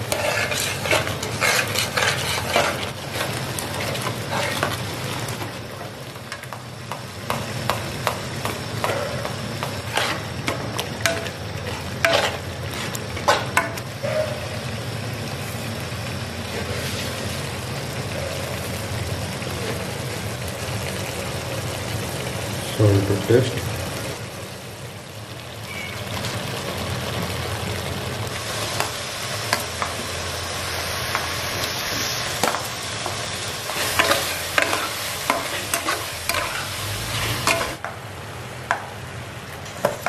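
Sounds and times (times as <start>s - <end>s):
spatula scraping metal pot: 0.0s - 4.7s, 8.8s - 14.4s
paste sizzling in oil: 0.0s - 37.9s.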